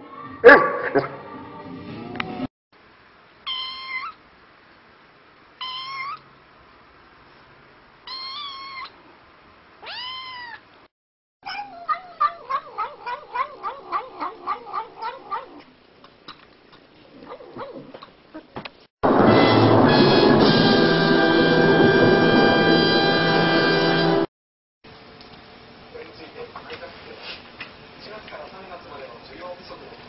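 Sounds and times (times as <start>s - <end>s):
kitten meowing: 3.5s - 4.2s, 5.6s - 6.2s, 8.1s - 9.0s, 9.8s - 10.6s.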